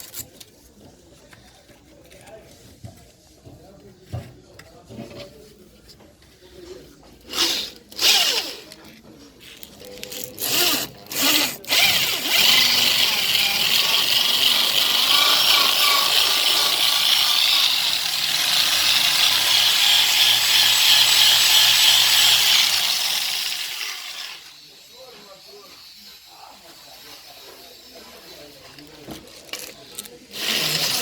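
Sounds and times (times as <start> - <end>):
power drill cutting metal: 10.4 - 28.6, 30.3 - 31.0.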